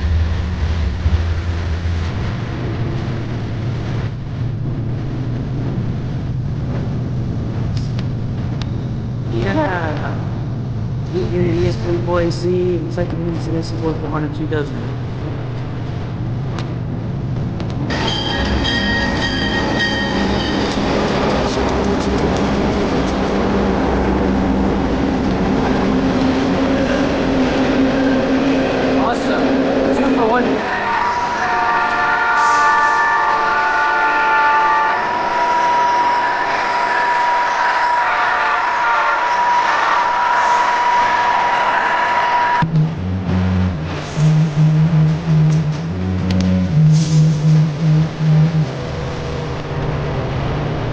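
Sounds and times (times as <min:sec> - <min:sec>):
engine droning: 0:00.0 - 0:30.5, 0:42.6 - 0:50.9
train passing rumble: 0:00.0 - 0:50.9.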